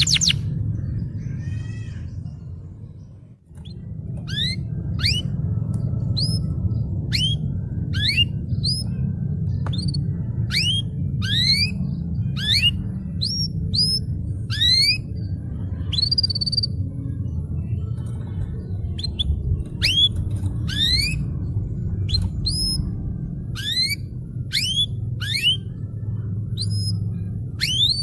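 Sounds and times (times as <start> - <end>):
steady low hum: 0.0 - 28.0
canary singing whistled notes: 3.6 - 5.4, 6.2 - 8.9, 9.7 - 15.1, 19.0 - 21.3, 23.5 - 25.8, 26.5 - 28.0.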